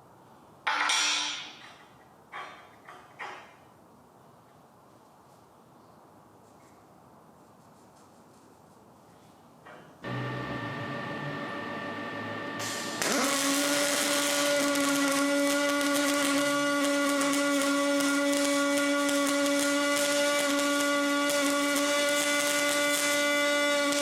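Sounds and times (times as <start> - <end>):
power tool motor whining: 10.0 - 24.0.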